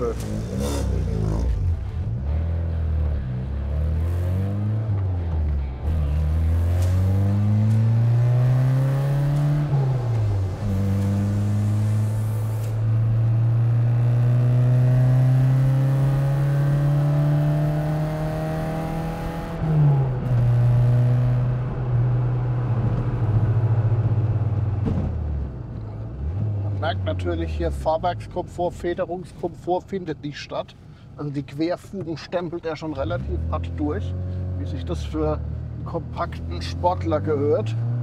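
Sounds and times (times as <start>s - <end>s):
car engine accelerating: 0.0s - 28.7s, 32.6s - 38.0s.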